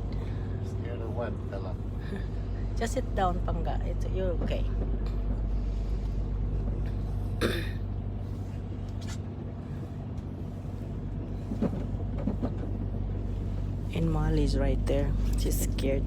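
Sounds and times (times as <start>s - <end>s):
diesel truck engine humming: 0.0s - 16.0s.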